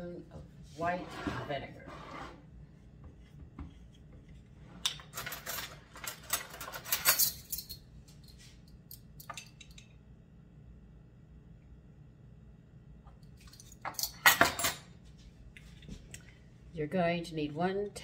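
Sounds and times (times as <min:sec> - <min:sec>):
kitchen utensils clinking: 0:05.0 - 0:07.8, 0:13.5 - 0:14.9.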